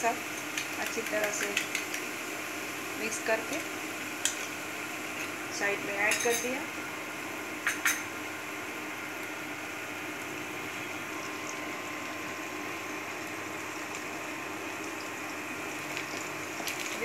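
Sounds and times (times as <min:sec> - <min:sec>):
onion and egg sizzling in oil: 0:00.0 - 0:17.0.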